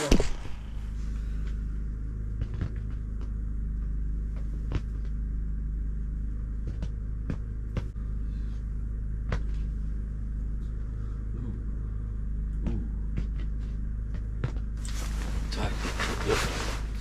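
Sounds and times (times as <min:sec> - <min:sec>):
low rumble and hum: 0:00.0 - 0:17.0.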